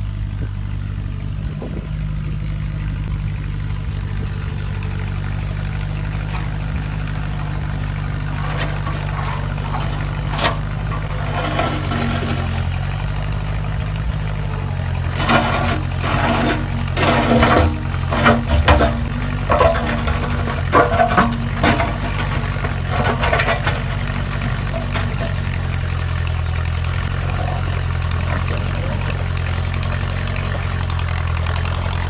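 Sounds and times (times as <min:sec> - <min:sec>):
tractor engine running: 0:00.0 - 0:32.0
clanks and knocks: 0:05.6 - 0:13.0, 0:15.0 - 0:32.0.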